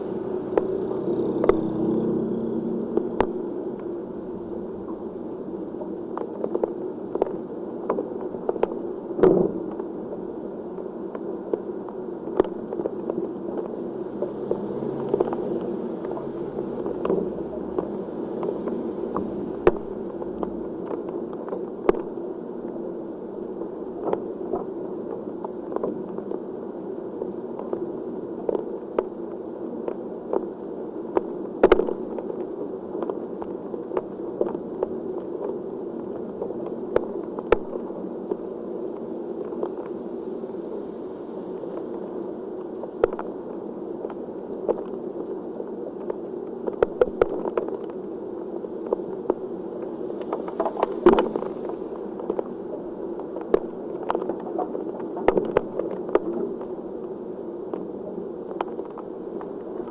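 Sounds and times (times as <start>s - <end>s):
heavy rain falling: 13.8s - 20.9s.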